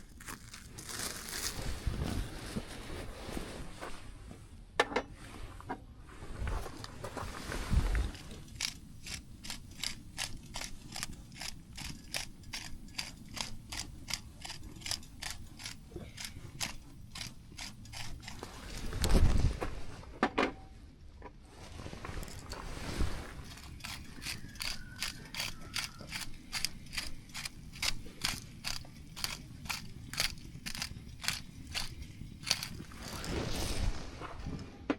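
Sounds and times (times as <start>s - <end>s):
handling noises: 21.6s - 34.9s.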